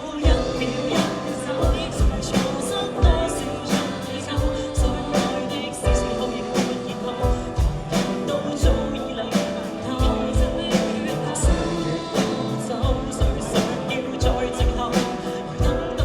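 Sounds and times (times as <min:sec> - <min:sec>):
live band playing a song: 0:00.0 - 0:16.0
person singing: 0:00.0 - 0:16.0.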